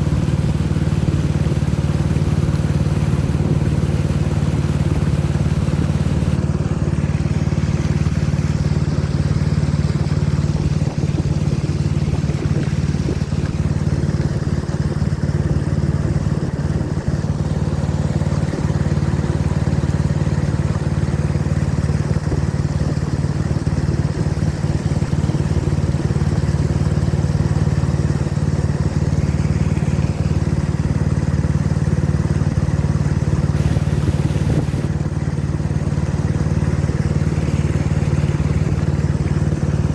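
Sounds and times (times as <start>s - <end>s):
boat engine droning: 0.0s - 39.9s
rushing water noise: 0.0s - 39.9s.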